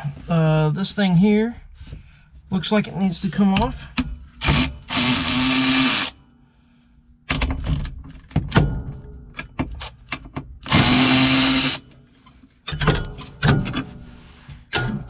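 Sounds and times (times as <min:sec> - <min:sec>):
cordless power tool running: 0:04.5 - 0:06.2, 0:10.7 - 0:11.8
small metallic clicks and knocks: 0:07.3 - 0:10.5, 0:12.6 - 0:13.9.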